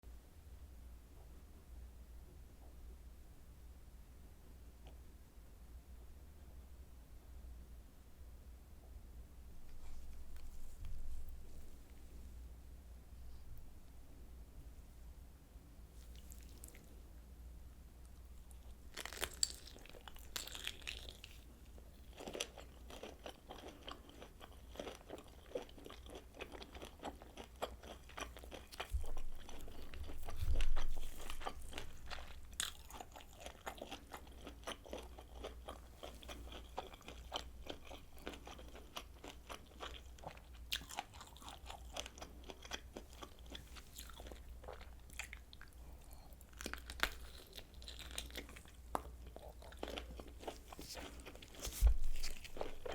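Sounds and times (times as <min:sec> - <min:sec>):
chewing and biting sausage: 0:18.5 - 0:52.9.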